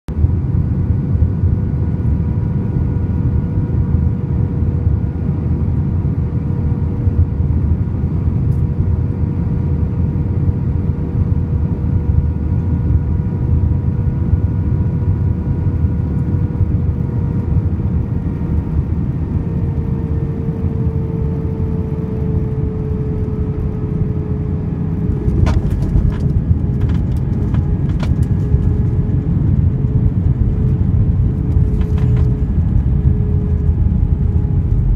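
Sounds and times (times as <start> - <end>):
airplane cabin rumble: 0.1 - 34.9
jet engine whine: 0.1 - 34.9
landing gear knocks and bumps: 25.3 - 28.2.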